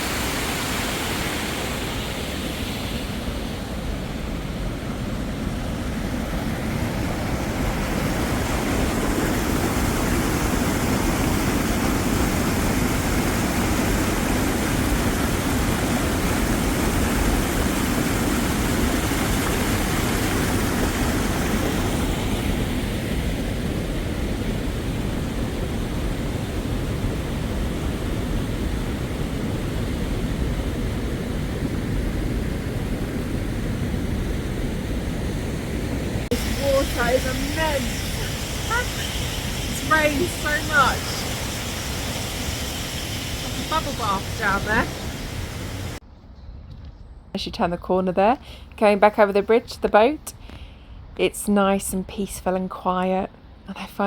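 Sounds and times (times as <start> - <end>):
water rushing over a weir: 0.0 - 33.3, 36.2 - 46.0.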